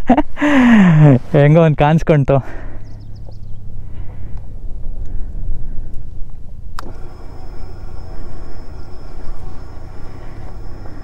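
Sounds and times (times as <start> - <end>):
motorcycle engine rumbling: 2.6 - 11.0
faint high whine: 6.6 - 11.0.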